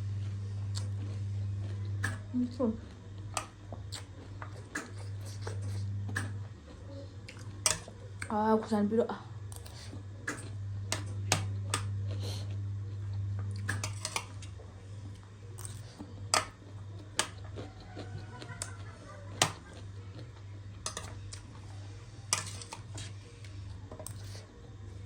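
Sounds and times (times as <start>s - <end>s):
steady low hum: 0.0s - 25.0s
utensil clinking on a dish: 20.8s - 21.3s, 22.3s - 23.1s.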